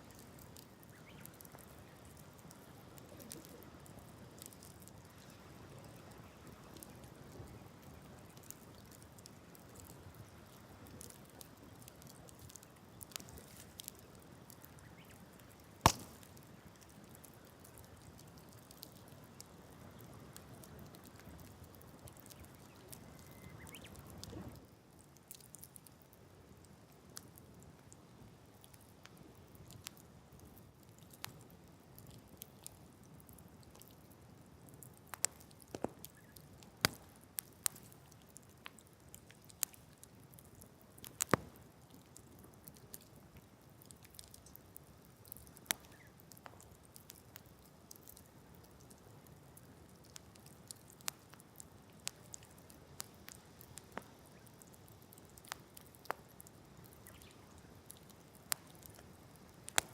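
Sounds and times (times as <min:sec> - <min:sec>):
campfire crackling: 0:00.0 - 0:59.9
sharp fire pops: 0:07.8 - 0:19.4, 0:35.1 - 0:38.0, 0:41.0 - 0:42.2, 0:45.3 - 0:47.2, 0:52.0 - 0:59.9
loud sharp fire pop: 0:15.8 - 0:16.3.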